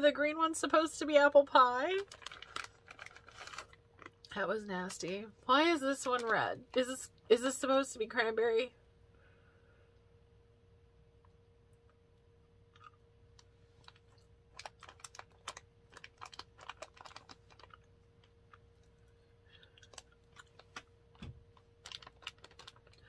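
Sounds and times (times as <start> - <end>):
faint steady hum: 0.0 - 23.0
person chewing candy: 2.0 - 4.3, 12.7 - 20.9, 21.8 - 23.0.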